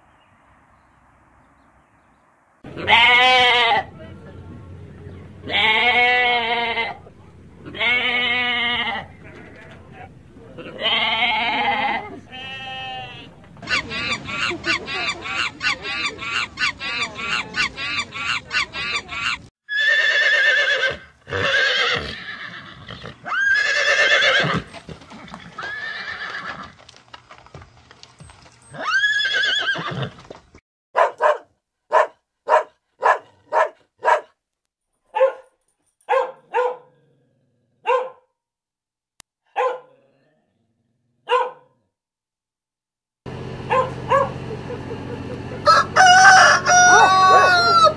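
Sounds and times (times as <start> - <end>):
monkey calling rapidly: 13.6 - 20.0
horse neighing: 16.0 - 26.8, 28.7 - 30.2
dog barking: 31.0 - 34.4, 35.1 - 37.0, 37.8 - 38.3, 39.5 - 40.0, 41.2 - 41.8, 43.7 - 44.4.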